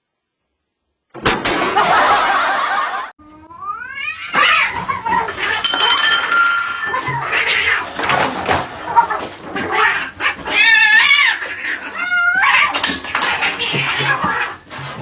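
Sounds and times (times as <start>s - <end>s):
cat yowling: 3.4s - 15.0s.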